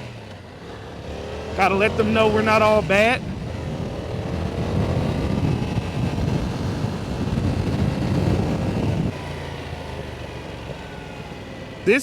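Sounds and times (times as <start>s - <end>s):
motorcycle engine running: 0.0s - 12.0s
wind rushing over microphone: 1.6s - 9.2s.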